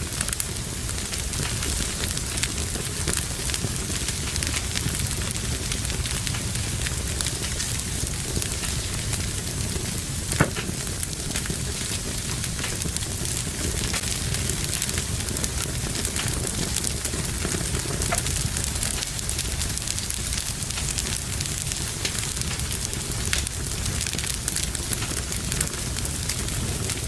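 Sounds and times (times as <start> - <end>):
wood fire crackling: 0.0 - 27.0
loud fire pop: 9.4 - 19.5.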